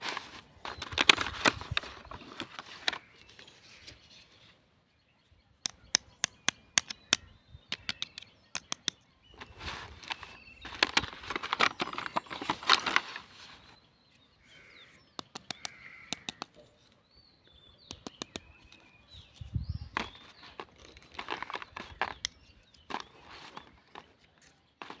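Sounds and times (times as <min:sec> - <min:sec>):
packaging rustling and crinkling: 0:00.0 - 0:04.0, 0:09.4 - 0:13.8, 0:20.0 - 0:22.2, 0:22.9 - 0:24.2, 0:24.8 - 0:25.0
sharp plastic clicks: 0:05.6 - 0:13.0, 0:15.2 - 0:16.6, 0:17.9 - 0:18.9, 0:19.9 - 0:24.2.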